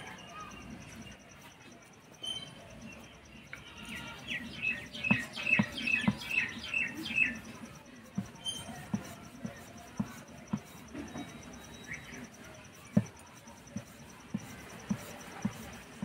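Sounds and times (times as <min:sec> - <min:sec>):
bird chirping: 0:00.0 - 0:08.8, 0:10.9 - 0:13.0
rolling pin knocking on stone board: 0:04.8 - 0:07.4.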